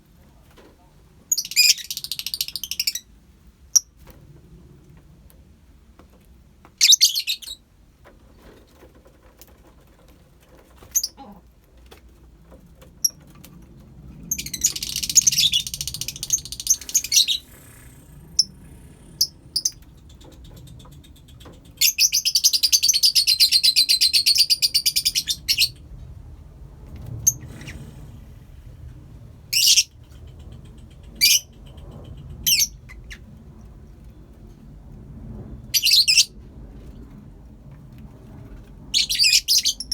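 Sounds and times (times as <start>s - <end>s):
lovebirds chirping: 14.3s - 25.9s
rapid shrill bird chattering: 14.4s - 25.7s.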